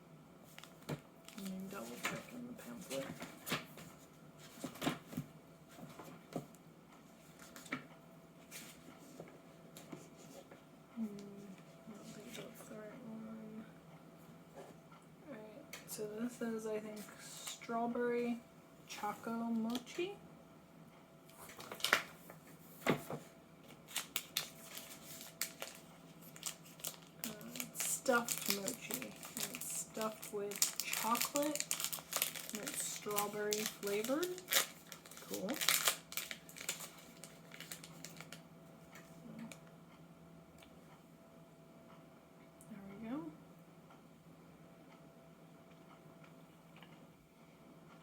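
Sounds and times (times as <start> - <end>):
plastic wrapper crinkling: 0.6 - 3.2, 21.4 - 22.2, 23.8 - 38.4
paper pages rustling: 21.4 - 38.4.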